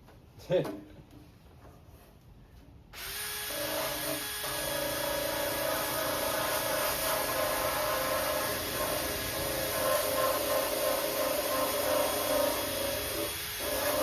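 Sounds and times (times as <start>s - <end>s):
wire wheel power tool scrubbing metal: 3.0s - 14.0s.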